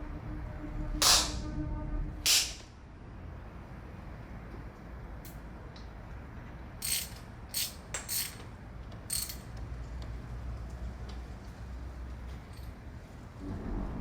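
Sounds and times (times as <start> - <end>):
ratchet wrench clicking: 6.8 - 9.6.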